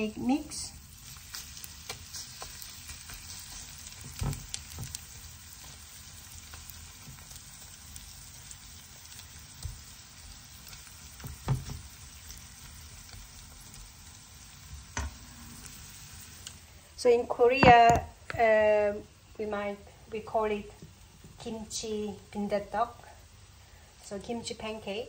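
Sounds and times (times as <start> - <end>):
batter sizzling in oil: 0.0 - 17.0.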